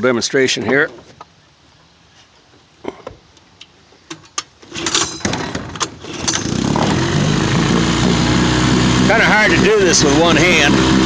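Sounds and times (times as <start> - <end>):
outboard motor starting and running: 4.7 - 11.0.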